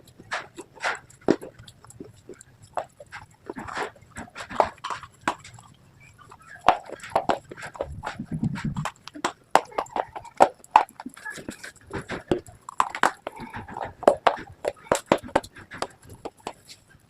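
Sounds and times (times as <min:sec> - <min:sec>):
crunchy pieces being chewed: 0:00.0 - 0:17.0
low muffled sound: 0:07.8 - 0:08.9.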